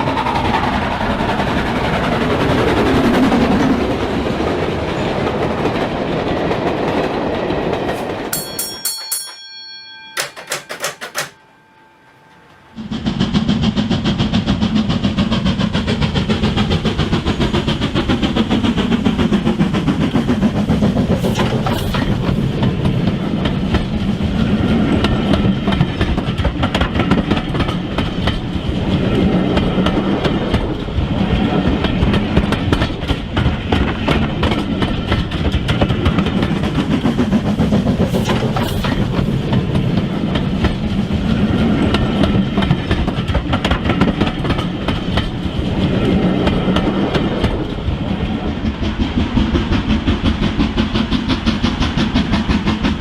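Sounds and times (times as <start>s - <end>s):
model train rumbling on track: 0.0s - 9.4s, 12.1s - 53.0s
wheels clicking over rails: 0.0s - 11.4s, 12.1s - 53.0s.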